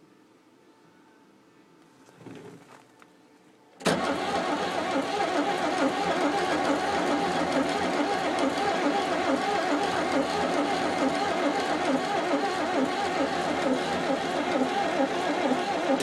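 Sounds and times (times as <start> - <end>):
tractor engine starting and running: 3.8 - 16.0.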